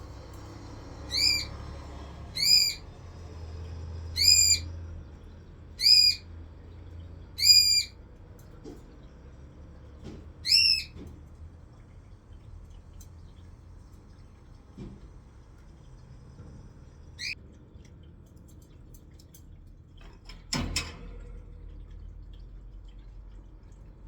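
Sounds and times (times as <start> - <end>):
parrot calling loudly: 1.1 - 1.6, 2.3 - 2.8, 4.2 - 4.7, 5.8 - 6.3, 7.4 - 7.9, 10.4 - 11.0.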